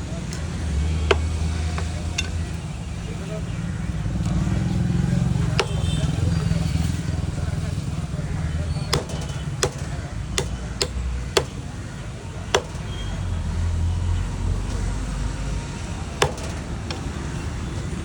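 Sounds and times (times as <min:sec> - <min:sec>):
blade chopping fish: 0:00.6 - 0:02.5, 0:04.9 - 0:13.7, 0:14.6 - 0:17.8.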